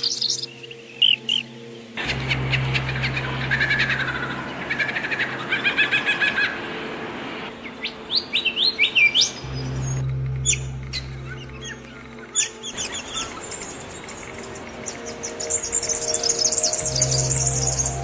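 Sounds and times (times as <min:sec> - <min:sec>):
songbirds chirping and singing: 0:00.0 - 0:06.3, 0:07.4 - 0:18.0
steady low hum: 0:09.4 - 0:18.0.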